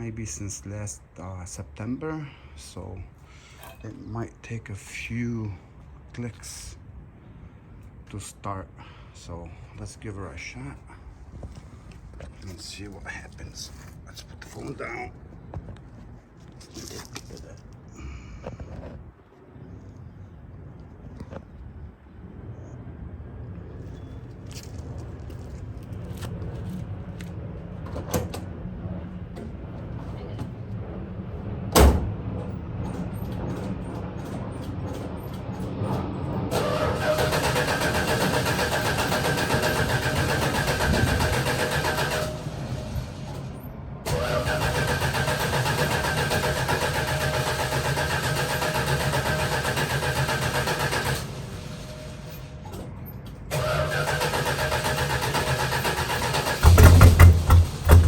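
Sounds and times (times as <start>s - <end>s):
starter cranking car engine: 36.5s - 43.5s, 44.1s - 52.5s, 53.5s - 58.0s.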